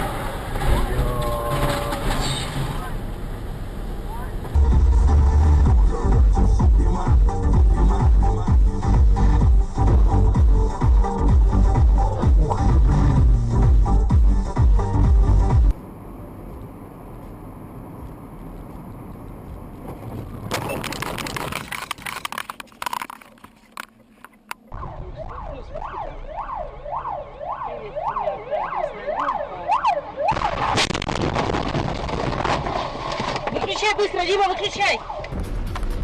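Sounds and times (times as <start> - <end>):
road noise: 0.0 - 36.0
emergency vehicle siren: 24.6 - 30.8, 34.6 - 35.4.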